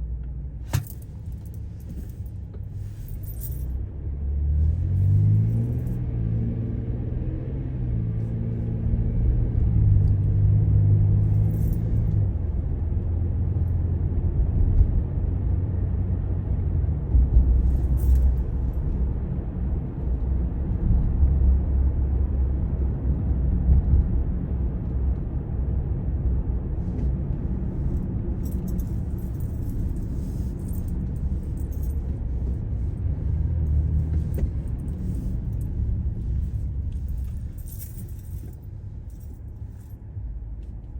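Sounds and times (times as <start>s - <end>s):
road noise inside car: 0.0s - 40.9s
vehicle engine drone: 0.0s - 40.9s
light rattling and jingling: 0.6s - 3.8s, 11.2s - 12.2s, 17.6s - 18.8s, 26.8s - 40.0s.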